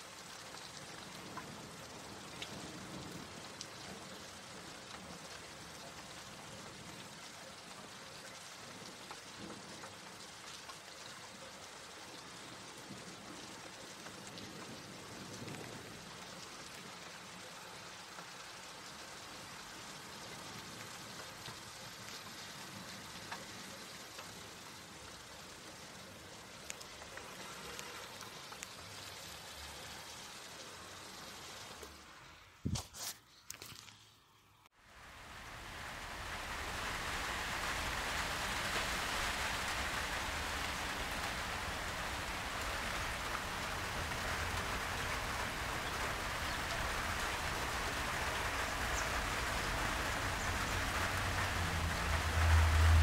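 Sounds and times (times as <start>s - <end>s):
rain hissing on plants: 0.0s - 34.0s, 34.7s - 53.0s
raindrop taps: 21.1s - 24.5s, 26.6s - 28.8s.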